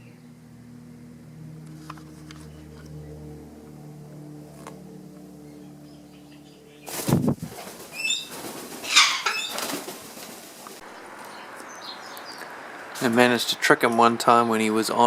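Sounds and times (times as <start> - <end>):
bird flapping wings: 6.9 - 10.8.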